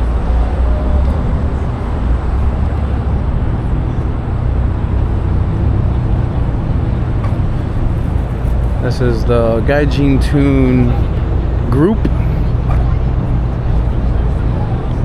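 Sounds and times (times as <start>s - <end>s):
car engines idling: 0.0s - 15.0s.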